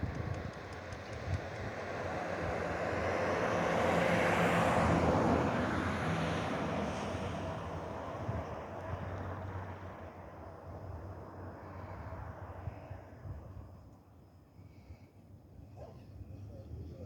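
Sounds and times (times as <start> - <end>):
vehicle passing by: 1.9 - 8.3.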